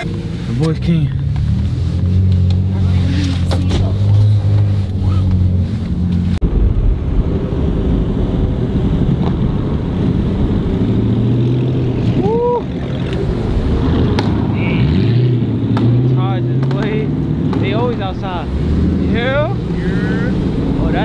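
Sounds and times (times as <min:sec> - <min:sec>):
car cabin engine hum: 0:00.0 - 0:21.0
car engines idling: 0:00.0 - 0:21.0
short rising and falling whoop: 0:12.0 - 0:13.6.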